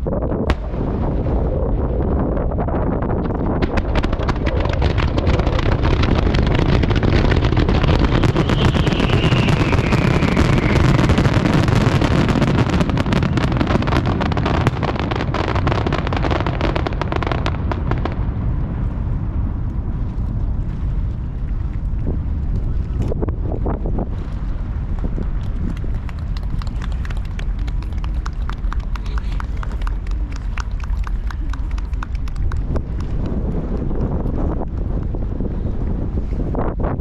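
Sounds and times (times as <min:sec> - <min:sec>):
firework bursts and crackling: 0:00.0 - 0:36.1
falling firework whistle: 0:07.8 - 0:13.4.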